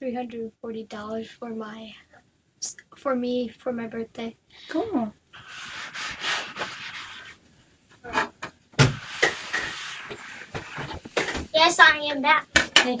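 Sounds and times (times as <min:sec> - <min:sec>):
rubbing and scraping on microphone: 0:05.3 - 0:11.7.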